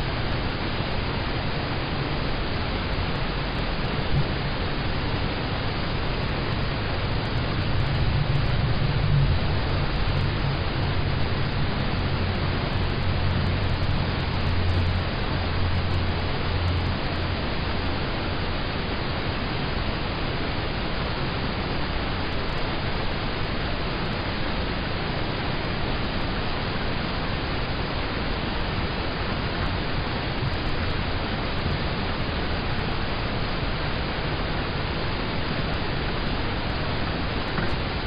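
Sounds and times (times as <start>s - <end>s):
rain on a car roof: 0.2s - 18.2s, 29.6s - 38.0s.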